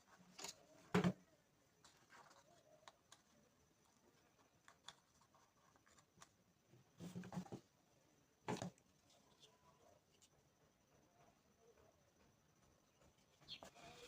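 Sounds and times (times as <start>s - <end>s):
rustling handling noises: 0.0s - 7.8s.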